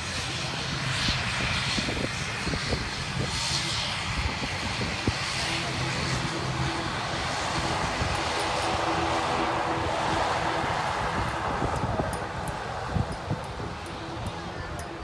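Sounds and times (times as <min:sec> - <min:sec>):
turboprop engines running: 0:00.0 - 0:15.0
high steady tone: 0:07.6 - 0:15.0.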